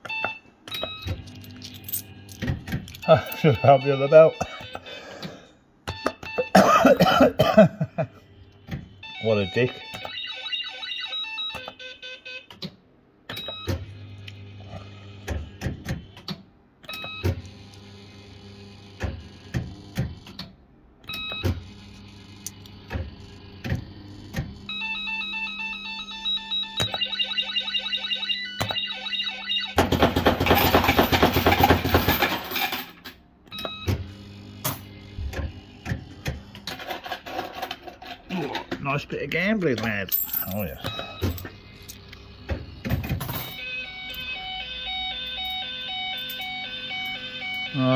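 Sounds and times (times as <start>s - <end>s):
steady electronic hum: 0.7s - 11.5s, 21.6s - 29.8s, 33.4s - 47.9s
bleeping tones: 40.8s - 41.5s, 43.6s - 47.9s.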